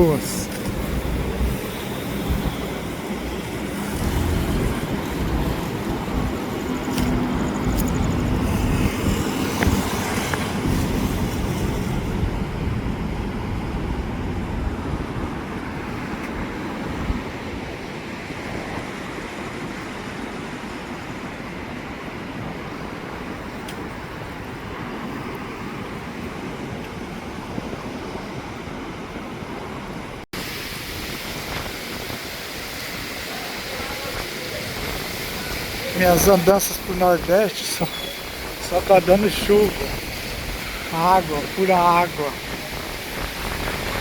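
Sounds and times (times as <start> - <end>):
traffic rumble: 0.0 - 14.9, 33.2 - 44.0.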